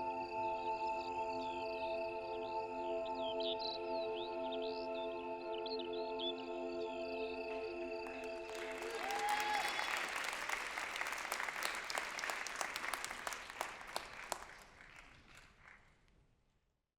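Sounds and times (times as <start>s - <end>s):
music: 0.0s - 14.7s
audience applauding: 8.0s - 16.0s.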